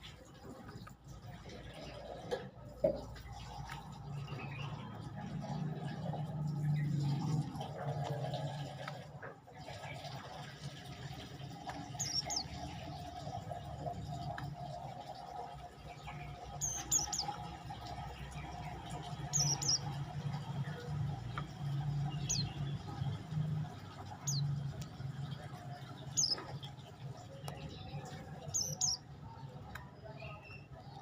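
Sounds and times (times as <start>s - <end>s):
small bird chirping: 11.8s - 13.0s, 16.0s - 31.0s.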